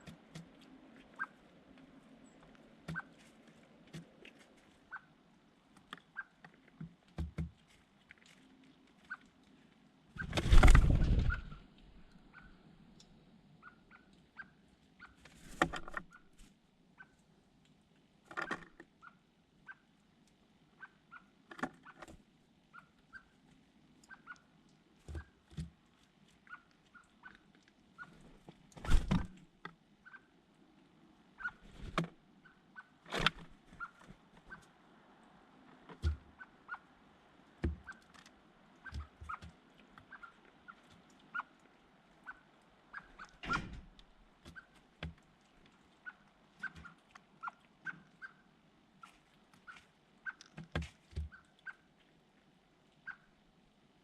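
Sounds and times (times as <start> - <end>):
small birds chirping: 10.1 - 15.3, 22.7 - 25.5, 31.3 - 34.8, 36.0 - 52.0
knocks and thumps: 43.4 - 44.0.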